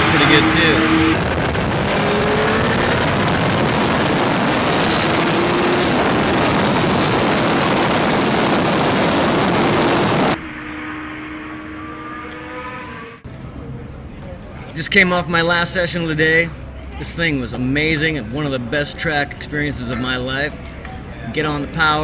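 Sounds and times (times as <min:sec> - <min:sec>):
motorcycle engine at high revs: 0:00.0 - 0:10.4.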